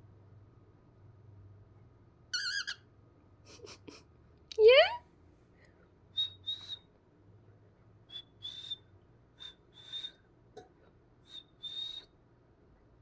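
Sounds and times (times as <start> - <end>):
high whistle: 6.2 - 6.8, 8.1 - 10.2, 11.3 - 12.1.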